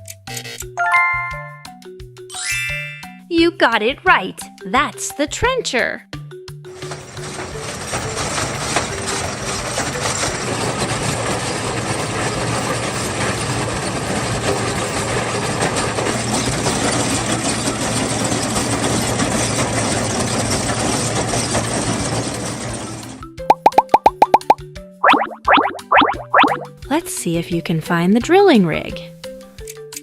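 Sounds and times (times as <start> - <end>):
heavy engine running: 6.7 - 23.1.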